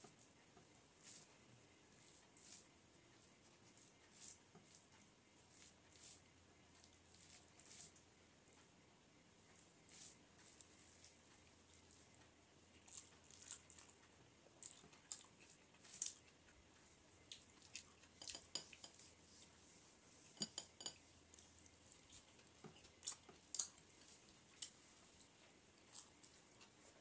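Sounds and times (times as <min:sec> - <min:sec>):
fingers mixing rice on metal plate: 0:00.0 - 0:01.3, 0:01.9 - 0:08.0, 0:14.6 - 0:27.0
person chewing with wet smacks: 0:09.7 - 0:19.2, 0:20.3 - 0:27.0.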